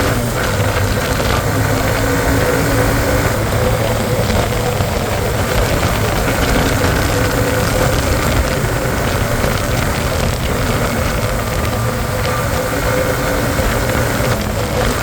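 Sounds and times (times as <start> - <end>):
motorcycle engine running: 0.0 - 15.0
wind noise: 0.0 - 15.0.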